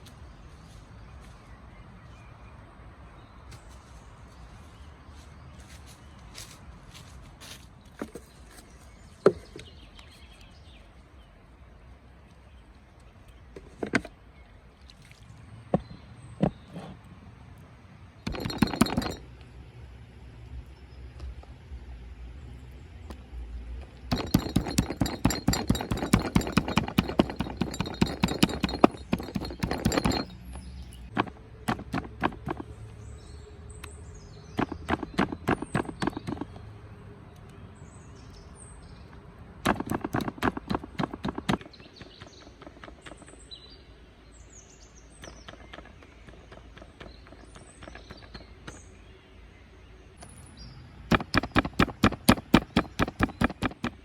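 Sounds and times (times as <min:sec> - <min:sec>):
stone pounding meat: 0:24.1 - 0:30.3, 0:51.1 - 0:54.0
small birds chirping: 0:24.1 - 0:39.2, 0:39.8 - 0:54.0.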